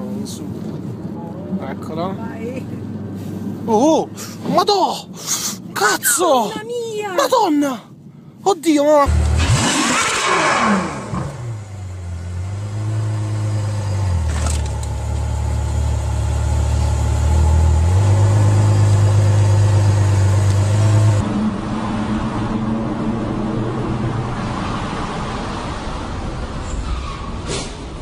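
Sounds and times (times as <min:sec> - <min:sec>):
car driving on road: 0:00.0 - 0:05.0, 0:09.1 - 0:28.0
car engine at low revs: 0:09.1 - 0:24.6.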